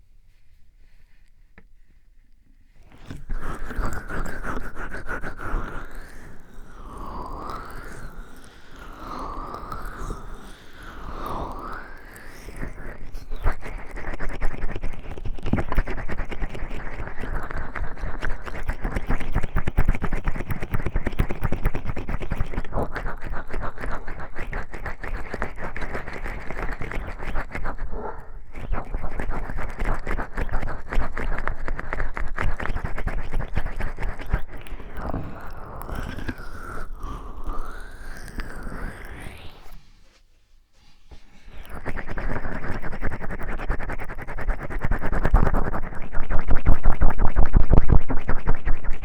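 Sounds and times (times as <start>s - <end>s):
oiled hands rubbing microphone: 0.0s - 6.7s, 21.4s - 49.0s.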